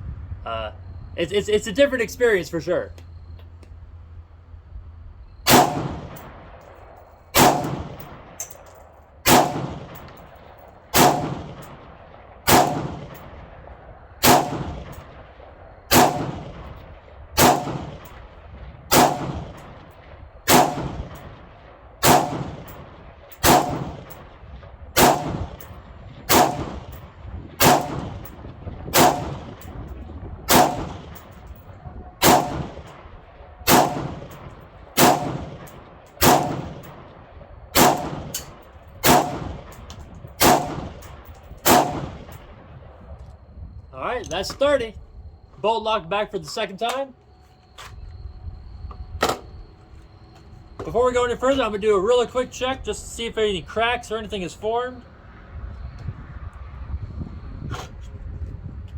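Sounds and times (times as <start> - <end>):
rifle shots: 5.4 - 42.8.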